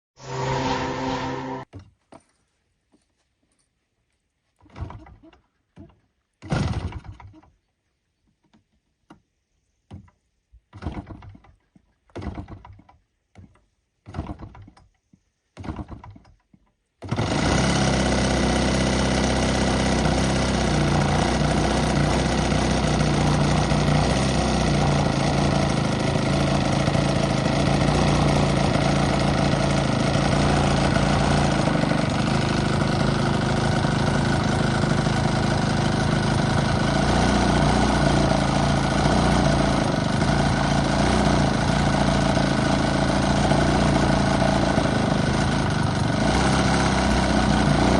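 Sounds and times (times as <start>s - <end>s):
short bursts of sound: 0.2s - 1.7s
model plane engine running: 17.0s - 47.9s.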